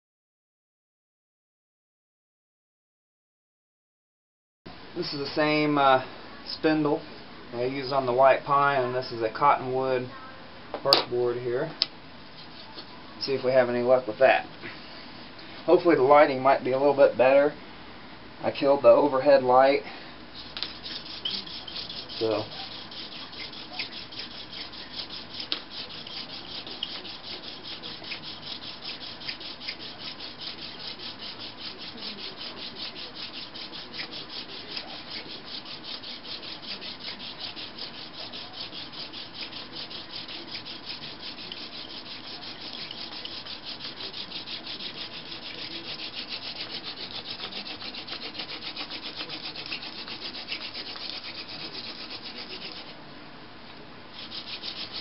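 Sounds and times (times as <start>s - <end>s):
wood rubbing on wood: 20.4s - 53.0s, 54.2s - 55.0s.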